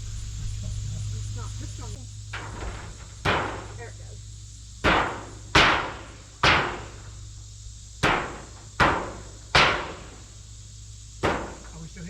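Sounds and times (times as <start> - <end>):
hammer striking wooden board: 4.8 - 6.9, 8.0 - 10.1.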